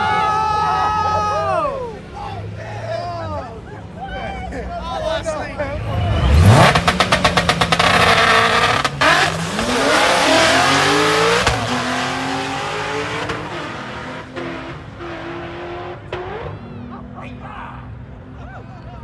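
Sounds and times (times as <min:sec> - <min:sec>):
drag racing car accelerating: 0:04.9 - 0:17.2.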